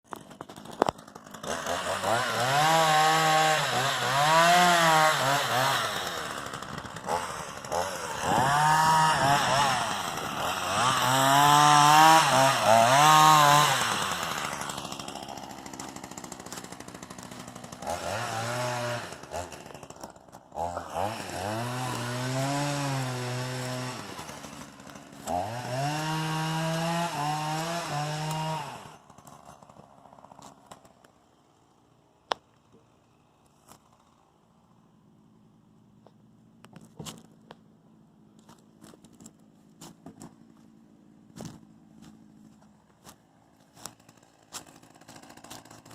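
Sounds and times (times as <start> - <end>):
chainsaw revving: 0.1 - 31.0, 43.0 - 45.9.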